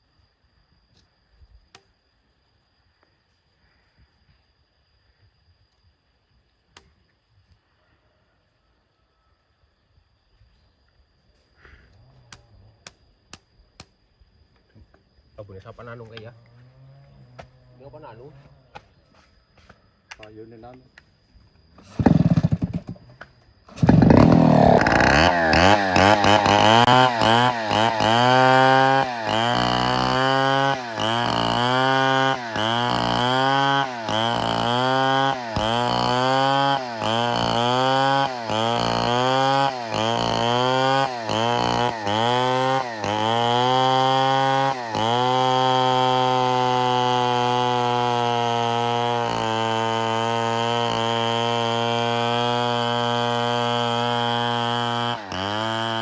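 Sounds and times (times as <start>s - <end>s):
chainsaw running: 21.8s - 56.0s.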